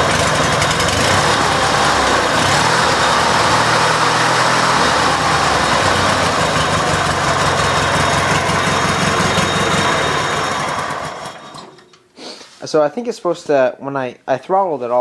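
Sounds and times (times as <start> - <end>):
engine running at full throttle: 0.0 - 11.6.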